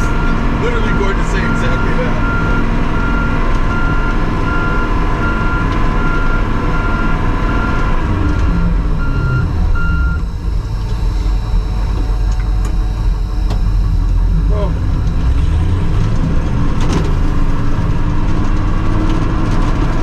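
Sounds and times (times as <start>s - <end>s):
backup alarm beeping: 0.0s - 7.9s, 8.5s - 16.0s
vehicle engine running: 0.0s - 20.0s.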